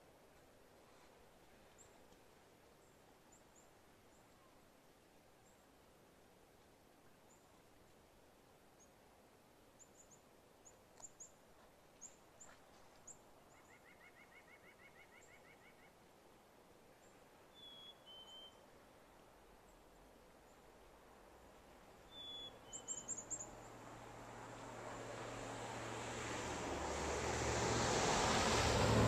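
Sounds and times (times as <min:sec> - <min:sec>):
short whistled bird notes: 0:17.6 - 0:18.6, 0:22.1 - 0:23.2
songbirds chipping: 0:22.0 - 0:23.8.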